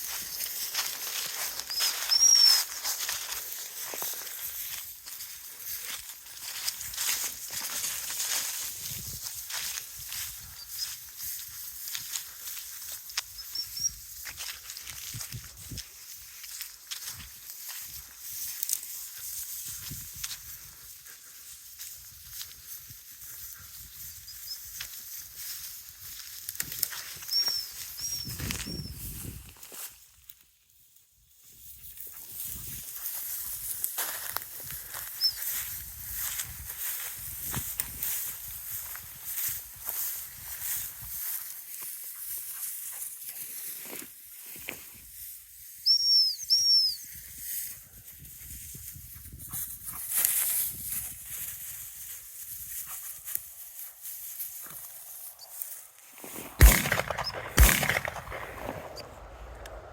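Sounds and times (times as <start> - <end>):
footsteps through dry brush: 0.0 - 46.0, 47.0 - 59.9
dog-training whistle toots: 1.7 - 2.6, 27.3 - 29.0, 45.8 - 47.1.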